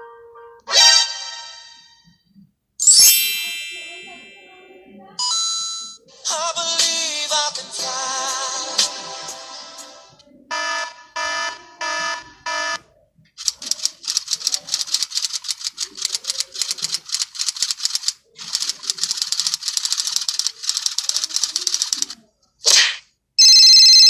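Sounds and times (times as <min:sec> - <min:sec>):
typewriter keystrokes clattering: 0:13.4 - 0:22.2.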